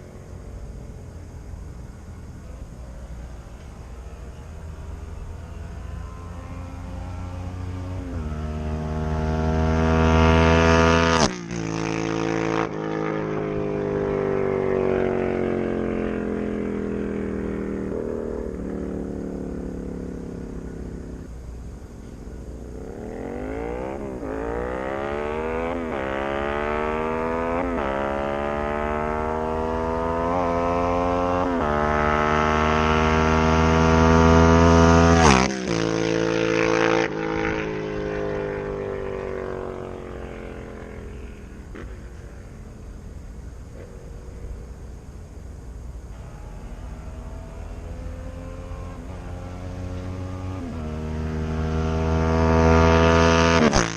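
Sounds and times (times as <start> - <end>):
motorcycle accelerating through gears: 0.0 - 21.5, 22.4 - 53.9
motorcycle passing by: 0.0 - 21.5, 22.3 - 53.9.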